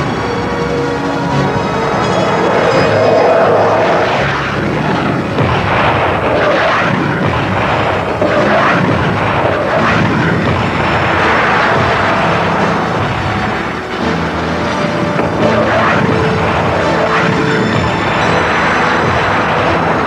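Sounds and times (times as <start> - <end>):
jet aircraft engine rush: 0.0 - 20.0
sharp blasts: 1.3 - 20.0.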